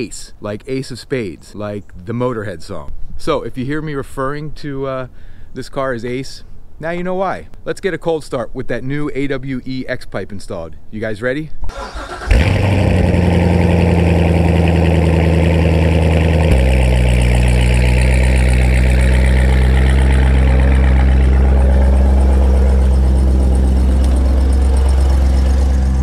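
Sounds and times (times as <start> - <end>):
car engine idling: 11.7 - 26.0.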